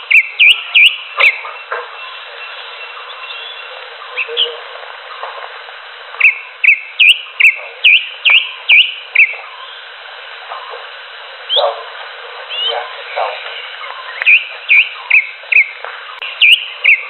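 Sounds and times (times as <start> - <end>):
steady background noise: 0.0 - 17.0
bird swooping whistled notes: 6.2 - 9.3, 14.1 - 15.7, 16.4 - 17.0.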